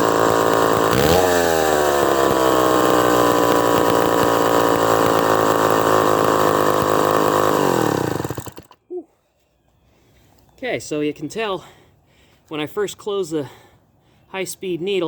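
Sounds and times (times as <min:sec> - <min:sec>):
chainsaw running at full throttle: 0:00.0 - 0:08.8.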